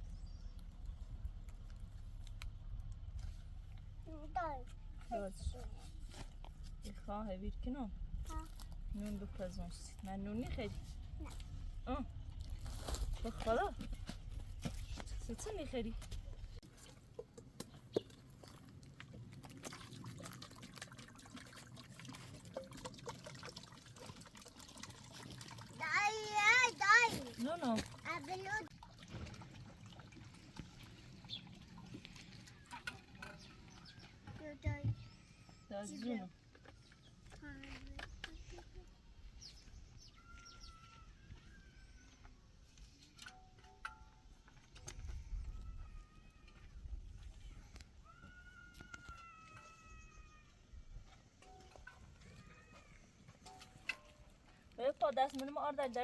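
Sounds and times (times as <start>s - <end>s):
low rumble: 0.0s - 16.6s
water trickling: 18.0s - 34.0s.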